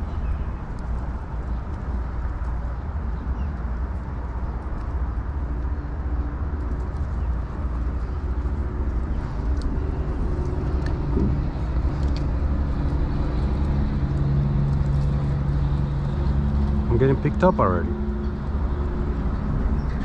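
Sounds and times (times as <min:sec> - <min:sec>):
motor engine rumbling: 0:06.2 - 0:20.0.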